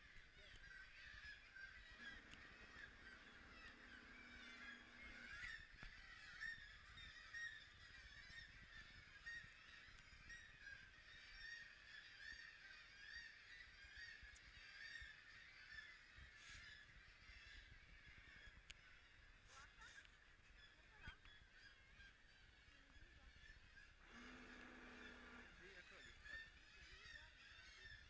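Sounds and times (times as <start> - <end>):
seabirds calling: 0.0 - 28.0.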